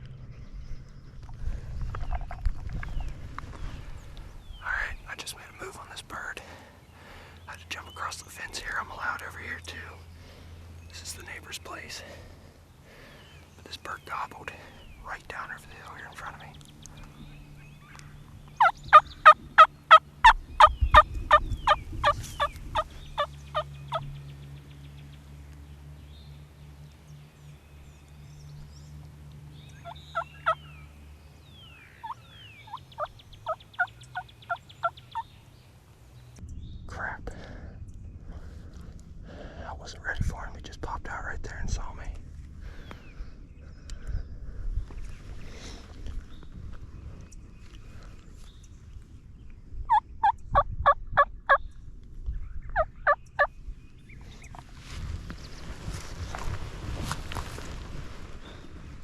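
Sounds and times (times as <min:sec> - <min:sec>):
wild turkey calling: 0:17.8 - 0:24.1, 0:29.6 - 0:30.8, 0:31.4 - 0:35.4, 0:49.9 - 0:51.6, 0:52.8 - 0:53.5
turkey yelping: 0:18.6 - 0:20.7, 0:29.8 - 0:30.6, 0:32.0 - 0:32.8.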